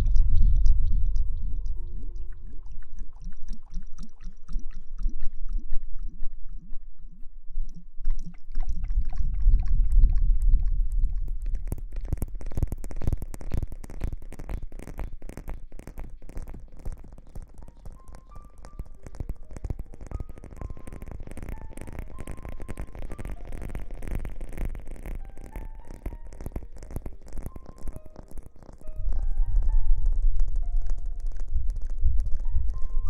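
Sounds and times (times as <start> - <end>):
deep rumble: 0.0 - 14.2, 28.8 - 33.0
dense crackling rustles: 9.1 - 33.0.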